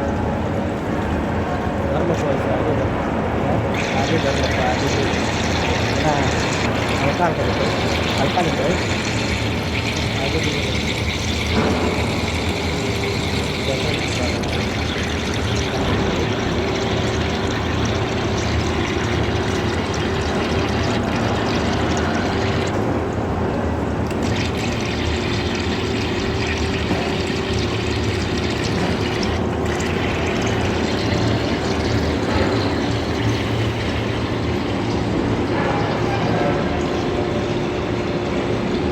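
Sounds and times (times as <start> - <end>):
cnc machine cutting steel: 35.4 - 38.8.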